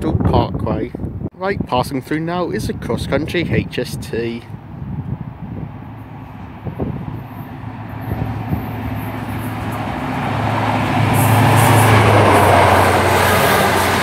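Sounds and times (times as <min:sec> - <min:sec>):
diesel train engine drone: 0:04.5 - 0:14.0
train wheels rushing: 0:05.8 - 0:14.0.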